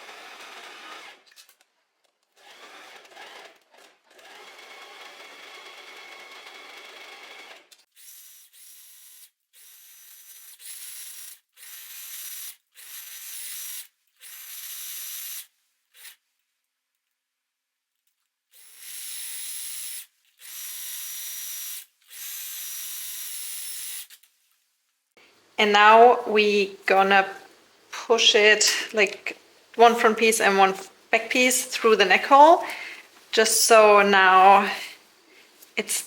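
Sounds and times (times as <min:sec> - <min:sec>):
sewing machine stitching: 0:02.4 - 0:08.2.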